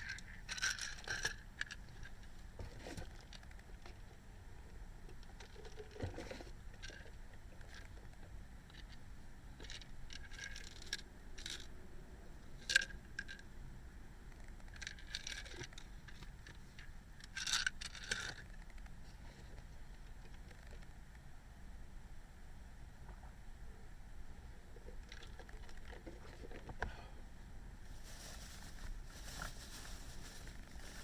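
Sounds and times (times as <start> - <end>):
rustling and scraping in car: 0.0 - 4.2, 5.1 - 9.0, 24.8 - 27.0, 27.8 - 31.0.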